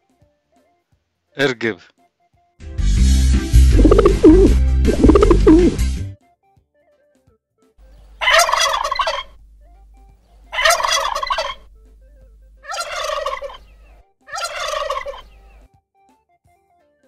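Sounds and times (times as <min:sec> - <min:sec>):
turkey gobbling: 0:03.8 - 0:05.8, 0:08.2 - 0:09.4, 0:10.5 - 0:11.8, 0:12.6 - 0:15.6.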